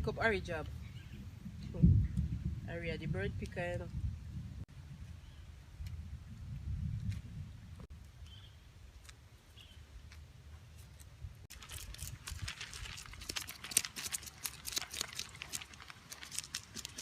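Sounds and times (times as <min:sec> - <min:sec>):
wood fire crackling: 0:11.4 - 0:17.0.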